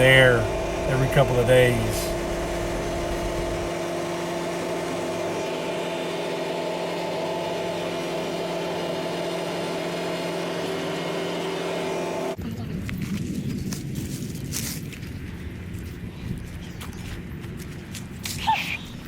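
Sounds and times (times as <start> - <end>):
tractor diesel engine humming: 0.0 - 12.4.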